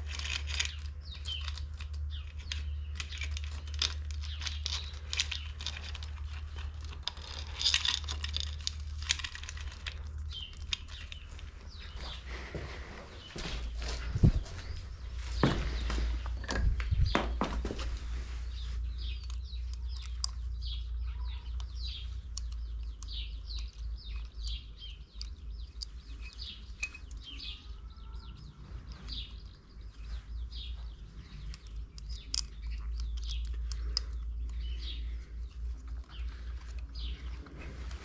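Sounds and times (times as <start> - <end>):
metal parts clicking: 0.0 - 12.0, 18.9 - 29.6, 30.5 - 38.0
small birds chirping: 0.0 - 38.0.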